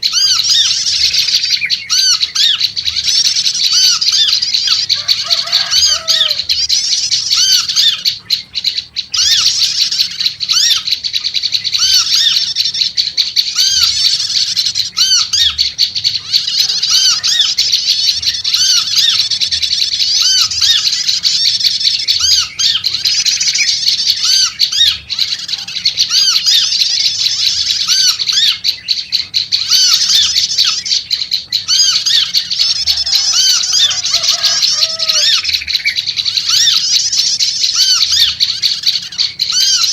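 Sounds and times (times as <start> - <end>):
bird chattering: 0.0 - 39.9.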